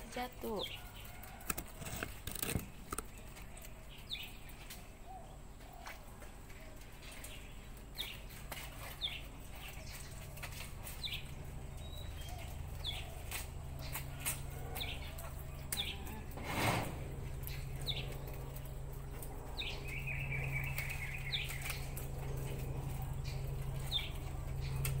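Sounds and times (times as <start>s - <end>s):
faint low hum: 0.0s - 25.0s
small bird chirping: 6.8s - 16.3s, 17.3s - 25.0s.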